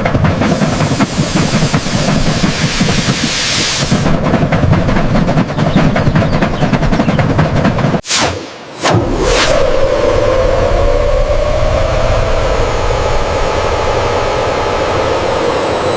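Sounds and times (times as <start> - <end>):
dense mechanical rattling: 0.0 - 8.0
low rumble: 8.2 - 15.9.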